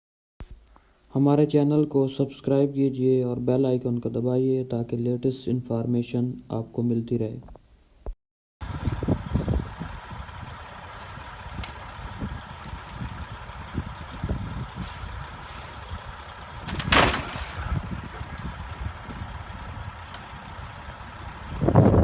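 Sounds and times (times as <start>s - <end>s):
heavy truck engine rumble: 8.6s - 22.0s
air brake hiss: 14.8s - 16.0s.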